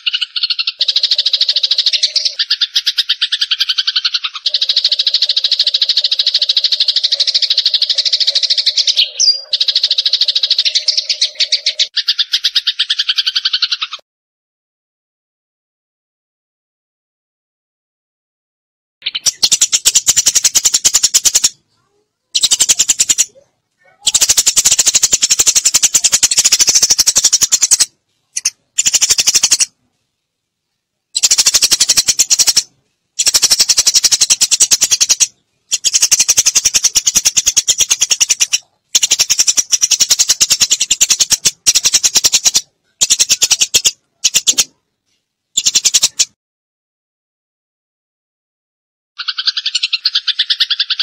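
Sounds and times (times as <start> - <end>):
sparrows chirping harshly: 0.0 - 14.0, 19.0 - 29.8, 31.1 - 44.8, 45.6 - 46.4, 49.2 - 51.0.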